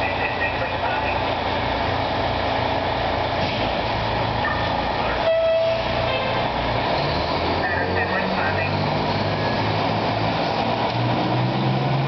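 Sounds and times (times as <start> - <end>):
fire engine rumbling: 0.0 - 12.0
air horn blast: 5.2 - 6.4.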